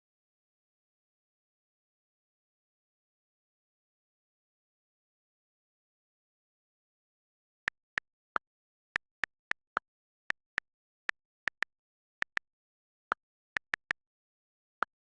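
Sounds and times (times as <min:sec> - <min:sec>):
short sharp clicks: 0:13.6 - 0:14.0.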